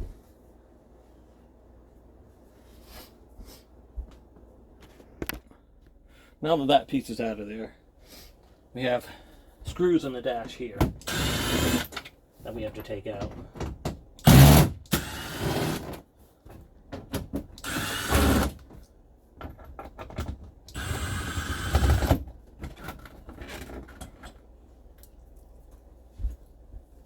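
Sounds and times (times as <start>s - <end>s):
power drill backing out screws: 11.0s - 12.1s, 14.2s - 16.0s, 17.6s - 18.6s, 20.7s - 22.2s.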